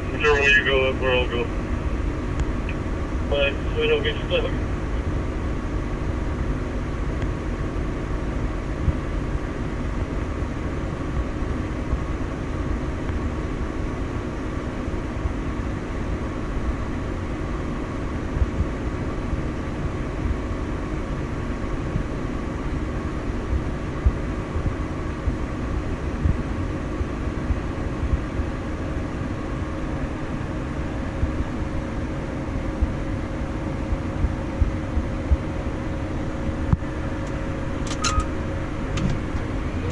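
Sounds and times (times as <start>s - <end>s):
farm vehicle engine running: 0.0s - 13.0s, 29.4s - 39.9s.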